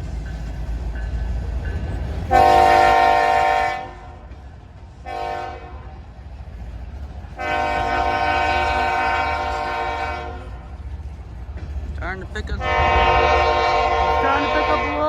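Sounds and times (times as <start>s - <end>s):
train rumbling: 0.0s - 15.0s
locomotive air horn blasts: 2.3s - 4.1s, 5.1s - 5.9s, 7.4s - 10.5s, 12.6s - 15.0s.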